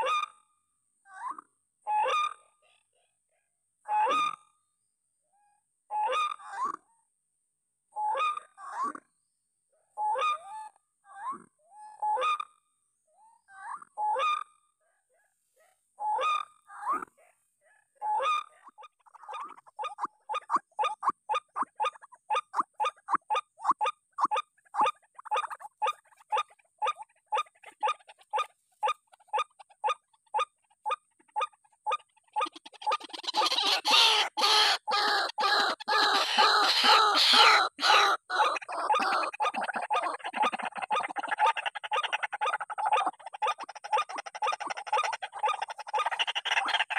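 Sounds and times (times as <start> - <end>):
waterhen calling: 18.1 - 46.9.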